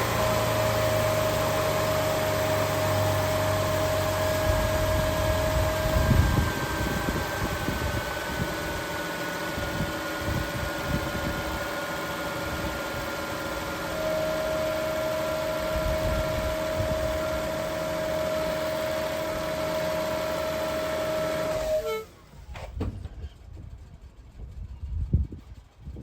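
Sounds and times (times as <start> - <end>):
car engine running: 0.0 - 26.0
constant whine: 0.0 - 26.0.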